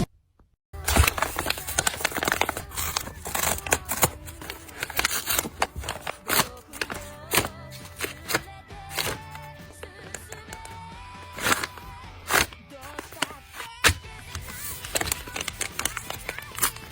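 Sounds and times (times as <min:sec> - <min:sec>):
paper crinkling and rustling: 0:00.8 - 0:16.9.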